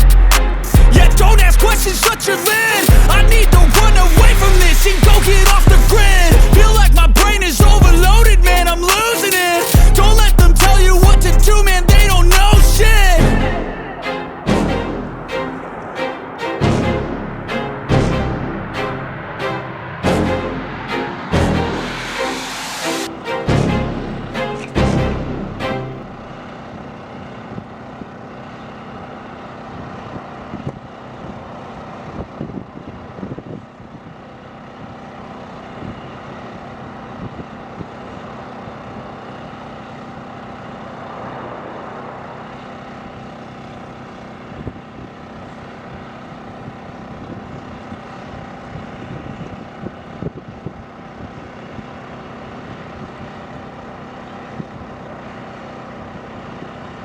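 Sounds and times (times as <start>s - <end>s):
jet engine with whining tones: 13.6s - 23.4s, 26.0s - 57.0s.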